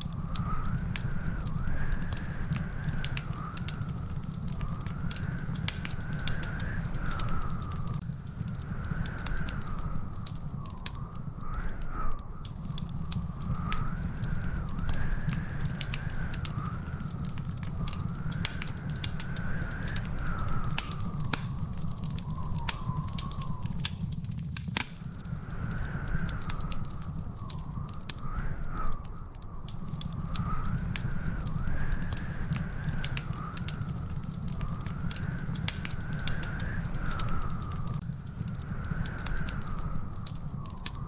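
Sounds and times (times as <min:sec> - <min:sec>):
wood fire crackling and popping: 0:00.0 - 0:41.0
faint high whistle: 0:19.5 - 0:23.8.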